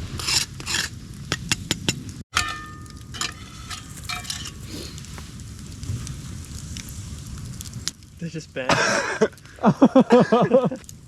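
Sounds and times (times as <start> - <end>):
metal utensil scraping a pan: 3.2 - 5.3.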